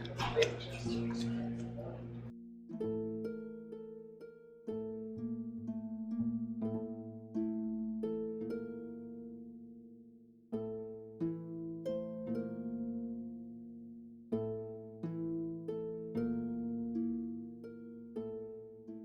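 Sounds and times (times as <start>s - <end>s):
plucked string melody: 0.8s - 19.0s.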